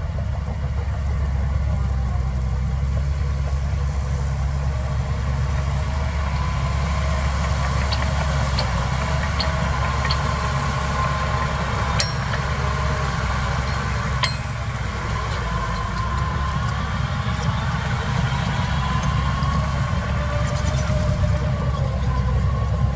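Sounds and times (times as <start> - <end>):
diesel engine running at low revs: 0.0 - 22.9
light metallic ticks: 7.4 - 16.8
sharp metal clanks: 7.6 - 19.6.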